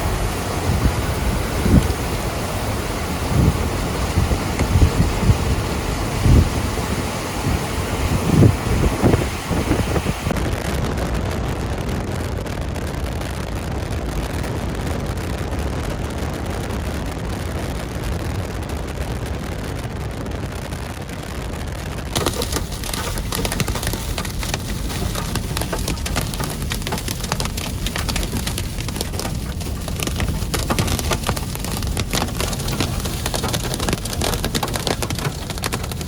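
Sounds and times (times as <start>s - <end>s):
hailstones striking vehicle: 0.0s - 10.5s, 22.1s - 36.0s
storm wind roaring: 0.0s - 36.0s.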